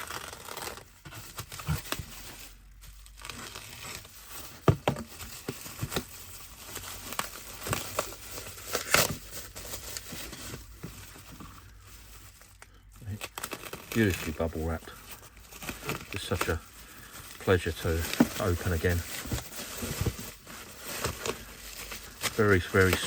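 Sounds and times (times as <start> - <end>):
bubble wrap crackles: 0.0 - 23.0
bubble wrap crinkling: 0.0 - 23.0.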